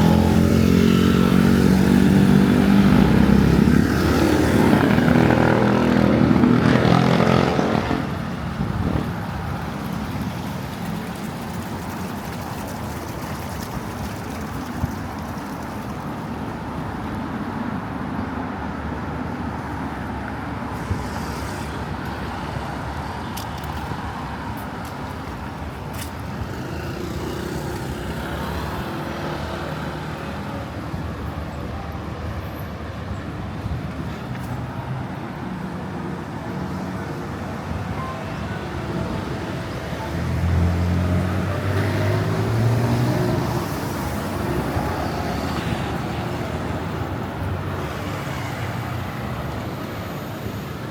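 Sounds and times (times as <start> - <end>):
heavy vehicle engine passing: 0.0 - 16.3, 33.5 - 50.3
city street traffic: 0.0 - 50.9.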